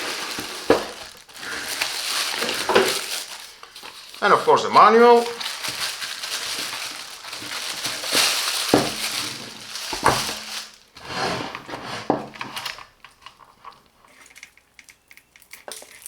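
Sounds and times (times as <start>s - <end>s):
packaging rustling and scraping: 0.0s - 14.7s.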